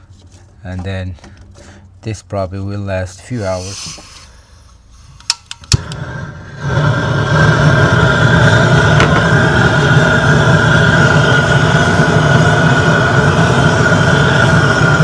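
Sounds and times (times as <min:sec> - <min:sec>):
propane torch roaring: 0:03.4 - 0:15.0.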